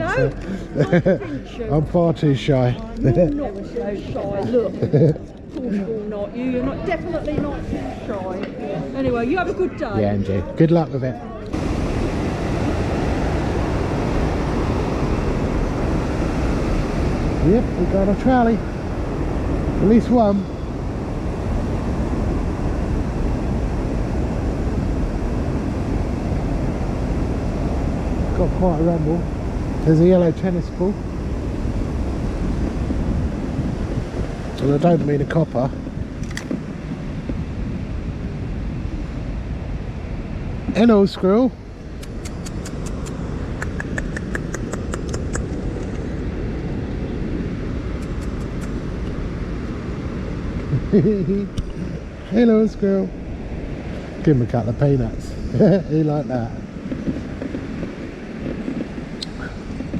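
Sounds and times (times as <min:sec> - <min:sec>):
rapid sharp ticks: 0:42.0 - 0:46.0.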